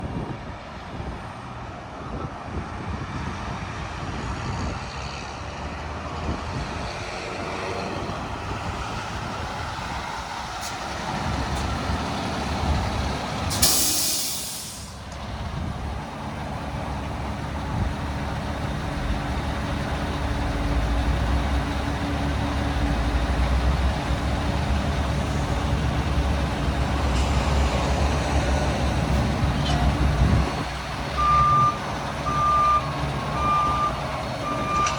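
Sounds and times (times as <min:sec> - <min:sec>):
truck diesel engine running: 0:06.4 - 0:34.9
air release hiss: 0:13.5 - 0:15.0.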